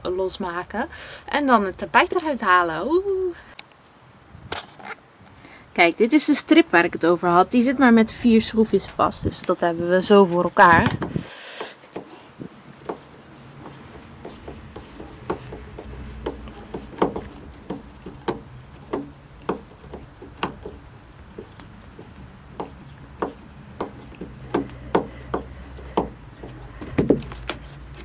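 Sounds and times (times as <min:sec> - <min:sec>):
screwdriver clicks and knocks: 0:12.8 - 0:27.7.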